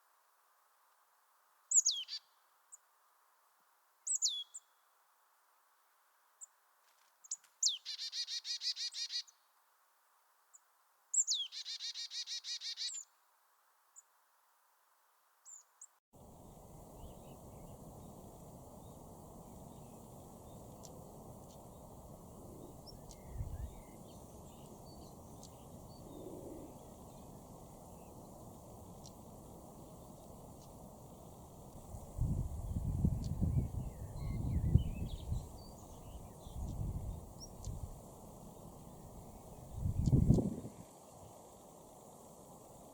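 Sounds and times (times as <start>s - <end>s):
small bird trilling song: 1.7s - 2.3s, 4.1s - 4.6s, 7.3s - 9.3s, 11.2s - 13.1s, 32.6s - 37.8s
faint bird chirps: 1.7s - 2.9s, 4.0s - 4.8s, 7.2s - 9.5s, 10.5s - 13.2s, 15.4s - 31.5s, 32.2s - 42.0s.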